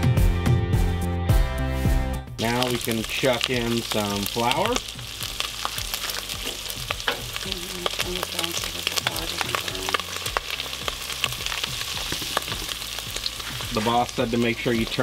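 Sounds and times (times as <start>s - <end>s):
sausage sizzling and popping in pan: 2.4s - 15.0s.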